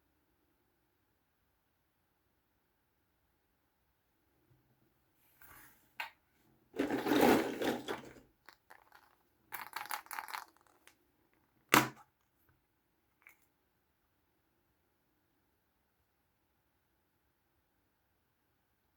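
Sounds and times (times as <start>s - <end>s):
plastic toys clicking: 8.5s - 10.9s.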